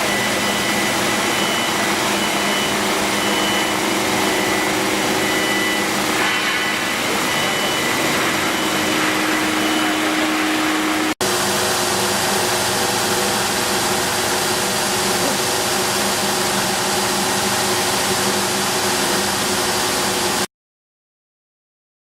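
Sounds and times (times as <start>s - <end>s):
polishing machine motor whine: 0.0s - 11.2s.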